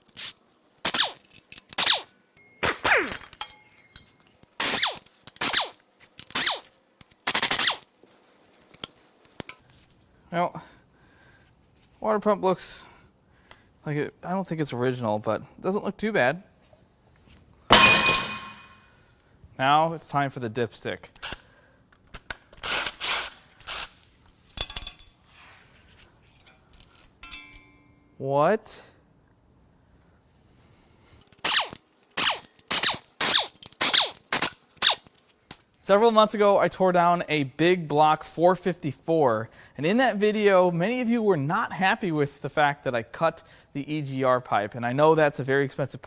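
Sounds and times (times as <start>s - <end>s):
power wrench whirring: 0.9s - 2.1s, 4.6s - 6.7s, 7.3s - 7.9s, 31.3s - 35.2s.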